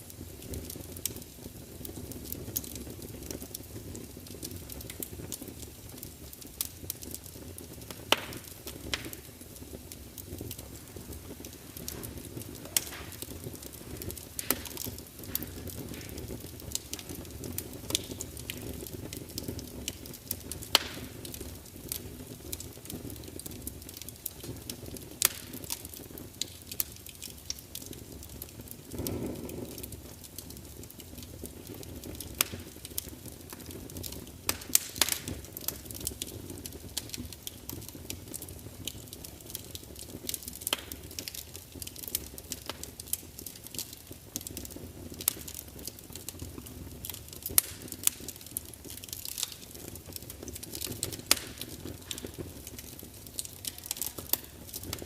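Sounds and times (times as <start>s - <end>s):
log fire crackling and popping: 0.0s - 55.0s
low rumble of flames: 0.0s - 55.0s.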